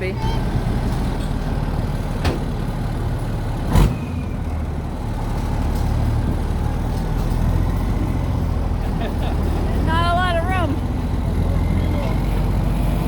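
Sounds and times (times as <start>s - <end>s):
truck engine running: 0.0s - 13.0s
loud thump: 2.2s - 2.6s.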